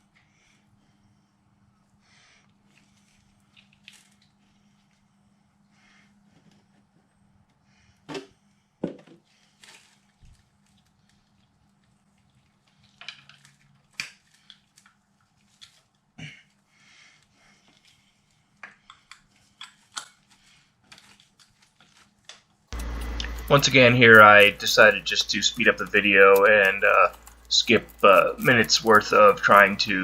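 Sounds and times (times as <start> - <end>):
faint steady hum: 0.0 - 20.7, 22.8 - 30.0
metal clicks and scrapes: 22.8 - 30.0.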